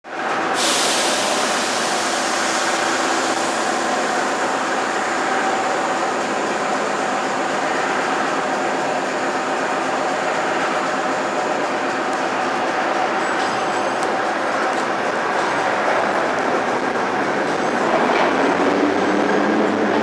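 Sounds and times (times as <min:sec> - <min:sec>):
train rolling on rails: 0:00.0 - 0:20.0.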